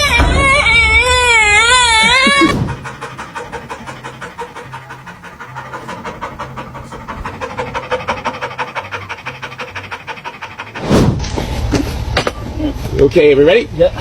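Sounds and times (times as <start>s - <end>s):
fast panting: 0.9s - 11.3s.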